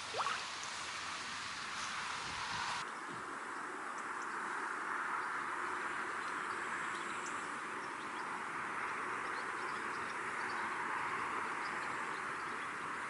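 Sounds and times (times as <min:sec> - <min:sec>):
even hiss: 0:00.0 - 0:02.8.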